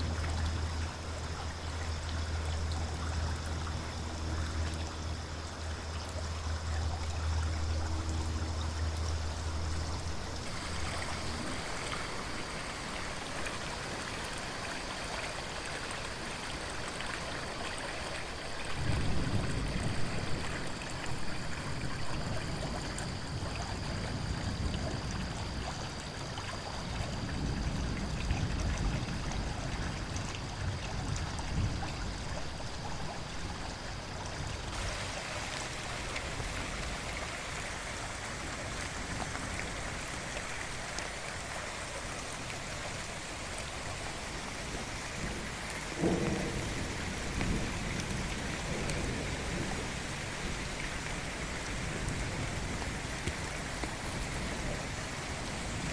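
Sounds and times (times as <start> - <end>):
running water: 0.0 - 55.9
steady rain: 0.0 - 55.9
low rolling thunder: 18.6 - 33.1, 42.9 - 55.9
thunderclap: 44.7 - 50.1.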